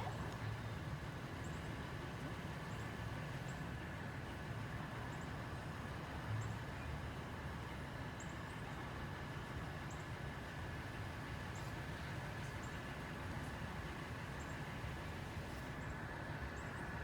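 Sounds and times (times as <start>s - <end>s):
distant road traffic rumble: 0.0s - 1.4s.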